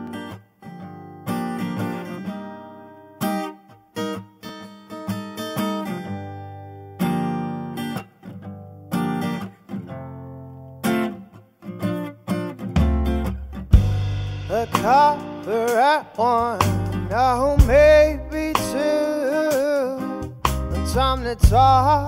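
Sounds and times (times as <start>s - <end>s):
strummed chords: 10.8s - 22.0s.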